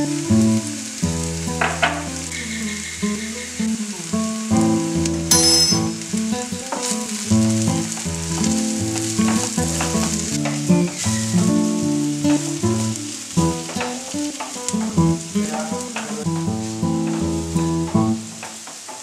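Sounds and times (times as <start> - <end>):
plucked background music: 0.0 - 15.7
onions sizzling in oil: 0.0 - 19.0.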